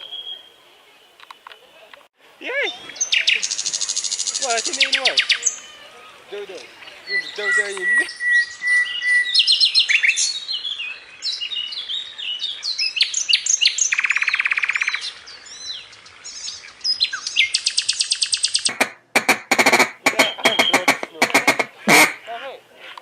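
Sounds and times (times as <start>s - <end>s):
small birds chirping and whistling: 2.6s - 18.7s, 20.0s - 22.0s
loud harsh bird calls: 2.6s - 22.3s
bird trill: 6.7s - 22.2s.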